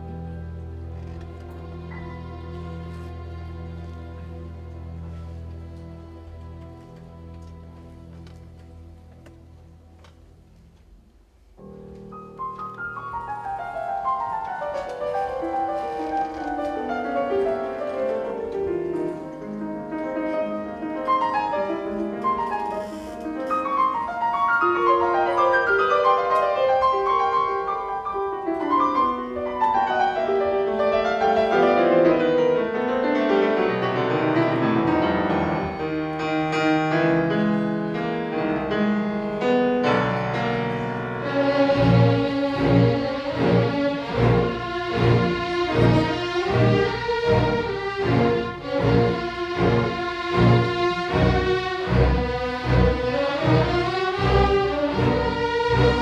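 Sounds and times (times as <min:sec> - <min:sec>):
solo piano fast runs: 0:11.6 - 0:56.0.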